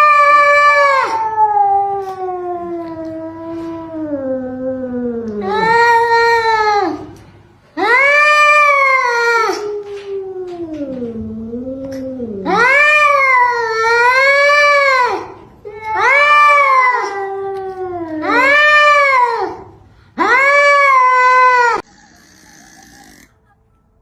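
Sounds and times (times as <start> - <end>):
cat yowling: 7.8 - 19.6, 20.2 - 23.3.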